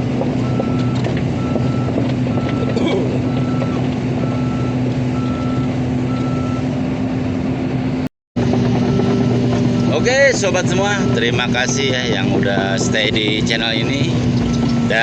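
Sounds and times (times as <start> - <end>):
diesel engine running: 0.0 - 15.0
backup alarm beeping: 0.4 - 6.7.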